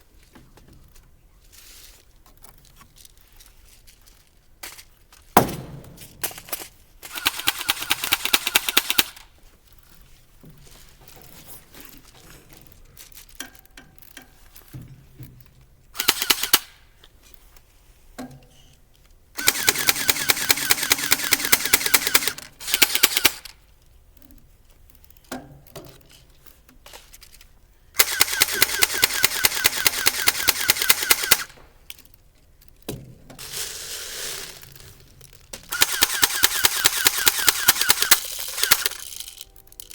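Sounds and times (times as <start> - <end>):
airsoft guns firing automatic bursts: 7.0 - 9.3, 16.0 - 16.8, 19.4 - 23.5, 28.0 - 31.6, 35.7 - 39.4.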